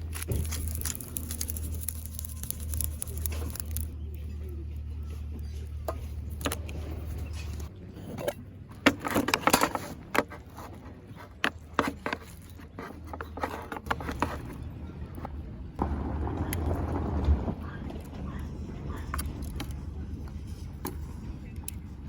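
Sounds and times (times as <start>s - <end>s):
handling clicks and scrapes: 0.0s - 15.3s
low steady hum: 0.0s - 22.0s.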